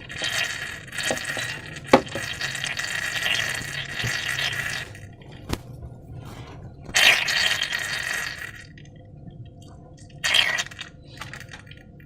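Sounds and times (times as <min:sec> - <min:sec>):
wet slime squishing: 0:01.0 - 0:08.8.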